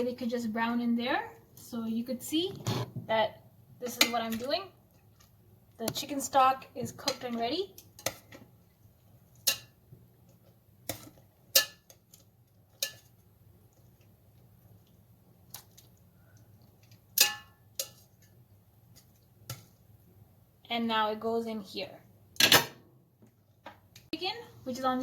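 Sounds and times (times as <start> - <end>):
metal utensils clinking on cookware: 9.4 - 9.8, 10.9 - 12.1, 12.7 - 13.1, 17.2 - 18.3.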